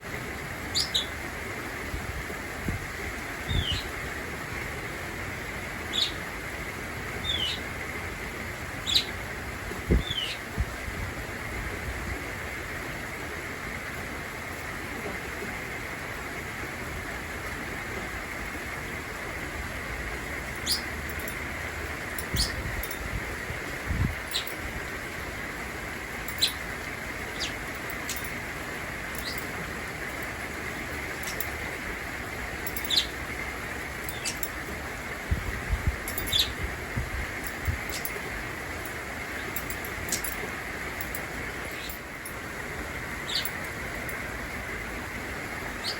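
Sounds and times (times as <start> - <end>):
rain falling: 0.0 - 45.9
budgie chirping: 34.1 - 34.5, 43.2 - 43.6.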